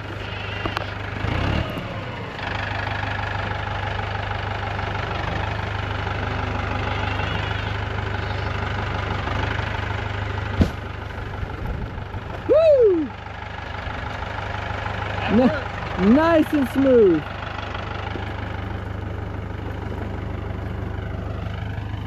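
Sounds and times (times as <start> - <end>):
tractor engine idling: 0.0 - 22.0.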